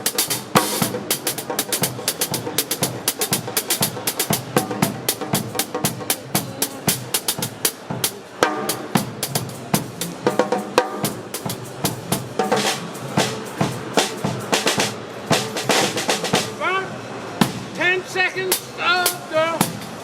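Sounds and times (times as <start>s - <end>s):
snare and bass drum hits: 0.0s - 6.4s
hi-hat strokes: 0.0s - 16.5s
ringing drum notes: 0.0s - 20.0s.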